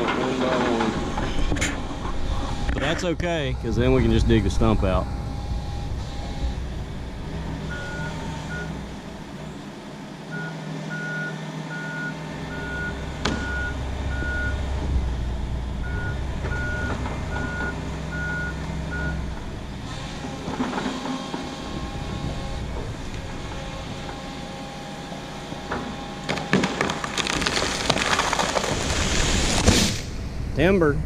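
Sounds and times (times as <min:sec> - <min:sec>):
excavator diesel engine: 0:00.0 - 0:28.8
travel alarm beeping: 0:07.7 - 0:08.7, 0:10.3 - 0:14.6, 0:15.9 - 0:19.2.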